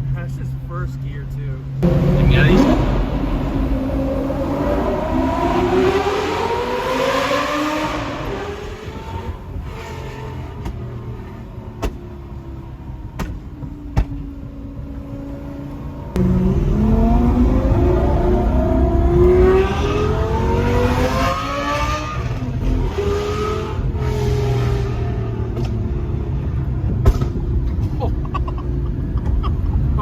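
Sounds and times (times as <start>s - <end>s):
sports car engine revving: 1.8s - 28.0s
exhaust pops: 26.9s - 28.0s.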